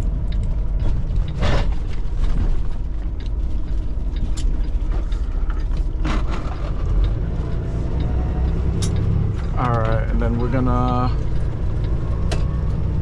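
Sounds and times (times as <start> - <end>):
diesel engine running: 0.0 - 13.0
truck cab creaking and rattling: 0.0 - 13.0
sharp clicks: 6.9 - 10.0.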